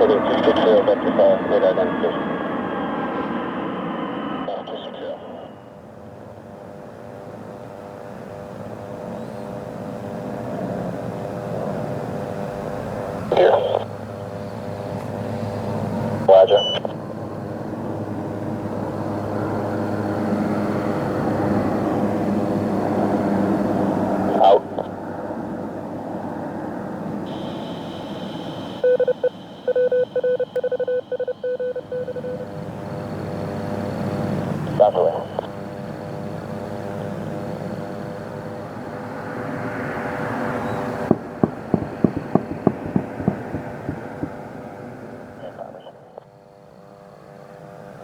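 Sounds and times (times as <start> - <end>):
aircraft engine drone: 0.0 - 48.0
sharp ticks: 41.1 - 44.4.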